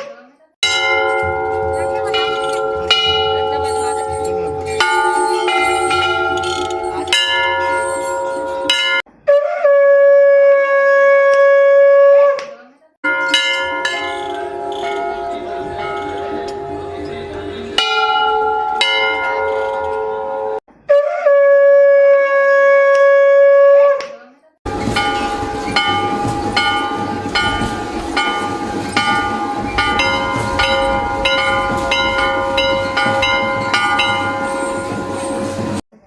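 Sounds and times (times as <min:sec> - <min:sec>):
steady held tone: 0:00.6 - 0:09.0, 0:13.0 - 0:20.6, 0:24.7 - 0:35.8
temple bell struck: 0:00.6 - 0:09.0, 0:13.0 - 0:20.6, 0:24.7 - 0:35.8
conch shell blown: 0:04.6 - 0:08.6, 0:09.4 - 0:12.4, 0:13.7 - 0:19.8, 0:20.4 - 0:24.0.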